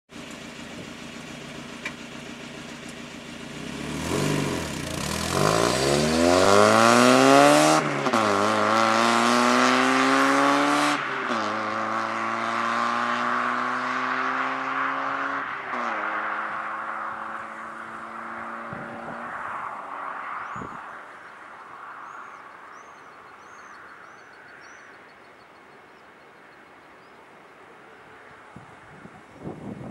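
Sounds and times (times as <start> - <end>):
car engine accelerating with upshifts: 0.2 - 23.9.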